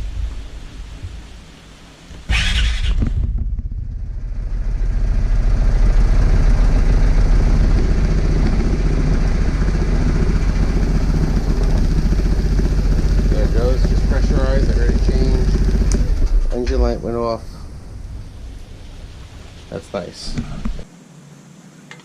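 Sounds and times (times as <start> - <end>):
scooter engine idling: 2.3 - 16.4.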